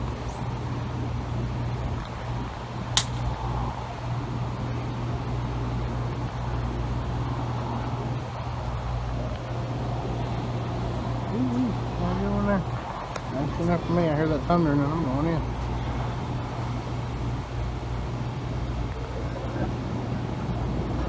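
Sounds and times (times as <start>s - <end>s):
even hum: 0.0s - 21.0s
low outdoor rumble: 0.0s - 21.0s
sharp click: 3.0s - 3.4s.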